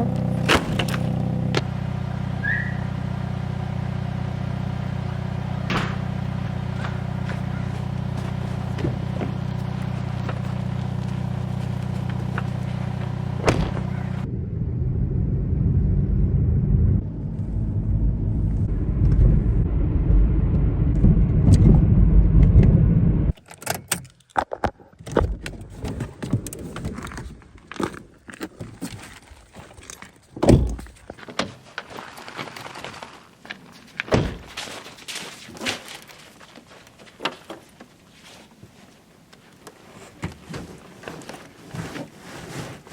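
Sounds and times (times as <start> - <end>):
vehicle engine humming: 0.0 - 23.4
clunks and knocks: 5.6 - 14.3, 30.3 - 31.6, 34.0 - 34.8.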